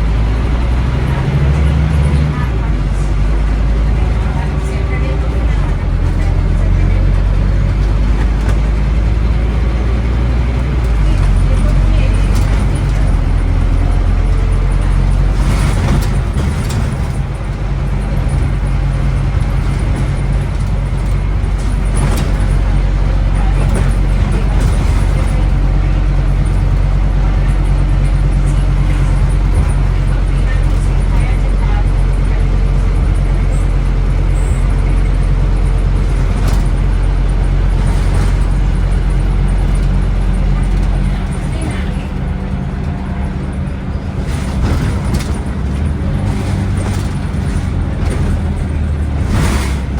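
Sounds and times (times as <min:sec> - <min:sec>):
bus diesel engine running: 0:00.0 - 0:49.9
road noise: 0:00.0 - 0:49.9.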